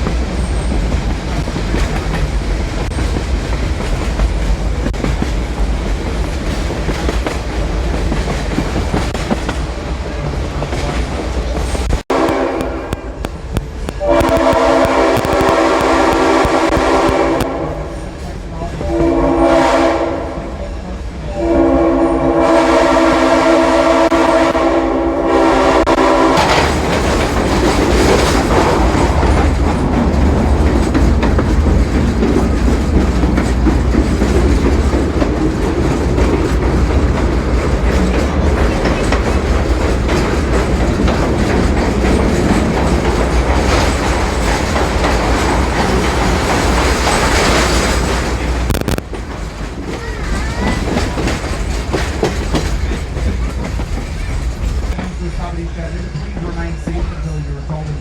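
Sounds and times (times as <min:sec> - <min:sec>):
train rumble and rail clatter: 0:00.0 - 0:58.0
locomotive horn blasts: 0:12.1 - 0:13.2, 0:13.9 - 0:18.0, 0:18.8 - 0:26.8.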